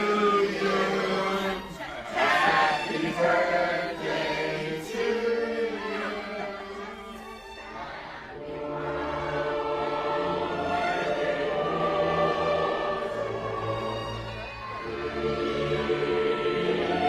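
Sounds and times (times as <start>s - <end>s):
choir singing sustained chords: 0.0s - 17.0s.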